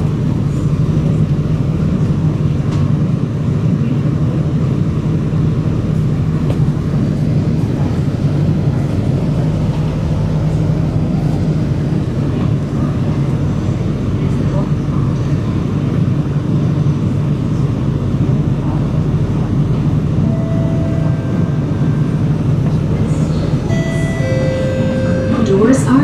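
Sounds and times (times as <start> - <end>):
train rumbling in a tunnel: 0.0 - 26.0.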